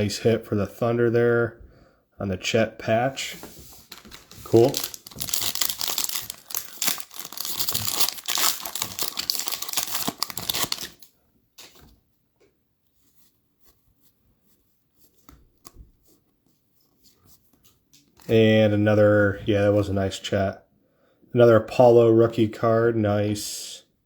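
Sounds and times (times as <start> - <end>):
plastic wrapper tearing and crinkling: 3.9 - 11.7.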